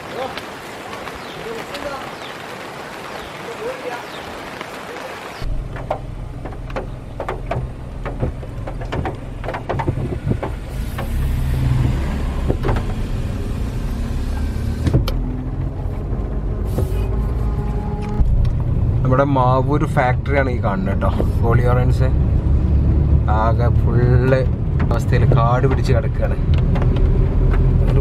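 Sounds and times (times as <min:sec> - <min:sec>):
engine and road rumble: 0:00.0 - 0:28.0.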